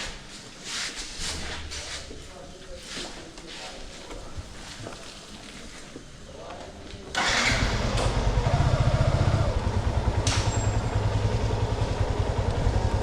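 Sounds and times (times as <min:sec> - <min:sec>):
motorcycle engine running: 0:07.2 - 0:13.0.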